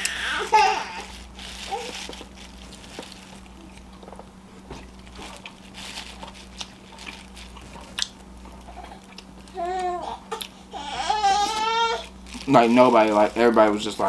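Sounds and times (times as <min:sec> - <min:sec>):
faint steady hum: 0:00.0 - 0:14.0
person chewing food: 0:01.0 - 0:10.7.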